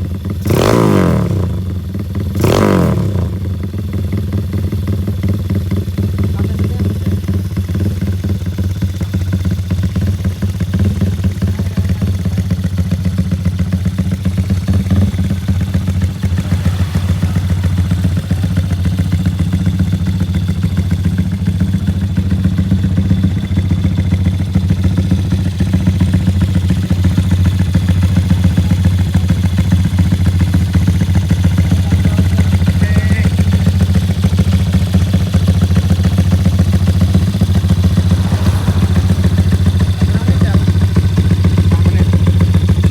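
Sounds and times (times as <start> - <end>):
engine idling deep exhaust: 0.0 - 42.9.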